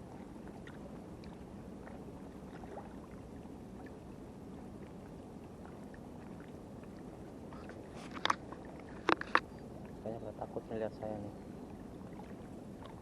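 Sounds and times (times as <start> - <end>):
faint small clicks: 7.6 - 8.4, 9.0 - 9.5.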